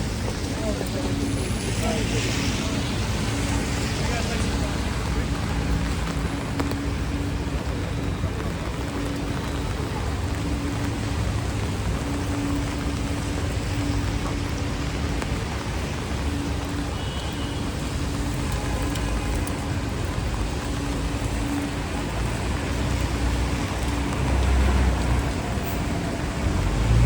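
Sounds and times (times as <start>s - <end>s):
motor traffic: 0.0s - 27.0s
rain on wet street: 0.0s - 27.0s.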